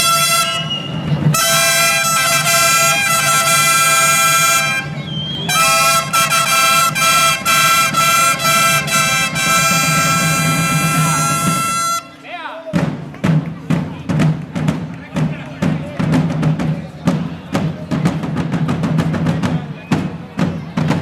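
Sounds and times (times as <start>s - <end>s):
reed pipes playing piercing melody: 0.0s - 12.3s
low bagpipe drone: 1.4s - 12.2s.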